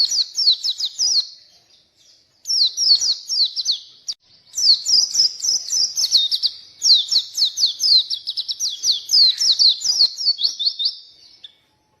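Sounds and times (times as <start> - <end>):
bird singing whistled notes: 0.0 - 12.0.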